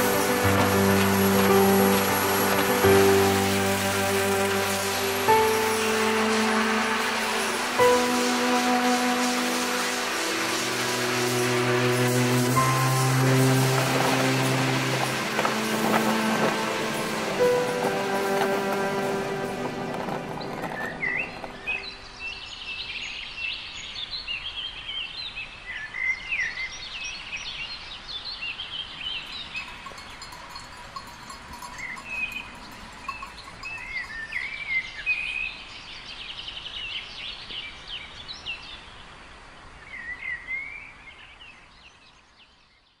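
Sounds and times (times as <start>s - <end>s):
small songbirds chirping: 20.4s - 43.0s.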